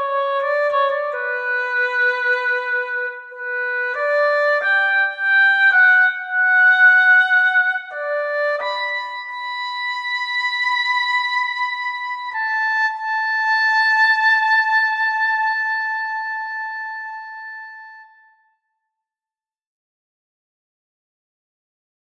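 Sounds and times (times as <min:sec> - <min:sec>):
oboe playing slow phrase: 0:11.4 - 0:18.5.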